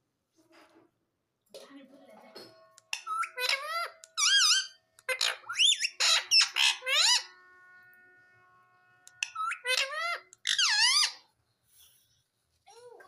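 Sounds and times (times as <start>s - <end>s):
parakeet squeaky calls: 2.9s - 7.4s, 9.1s - 11.4s.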